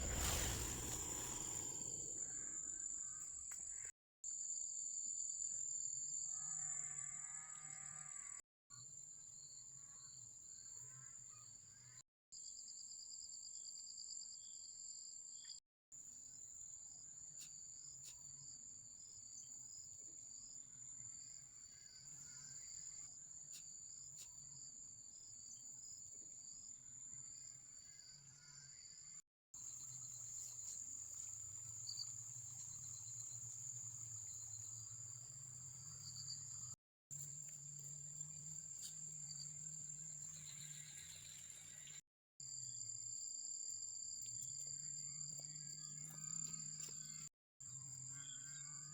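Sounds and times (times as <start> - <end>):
insect chirping: 0.0 - 3.3, 29.6 - 42.0.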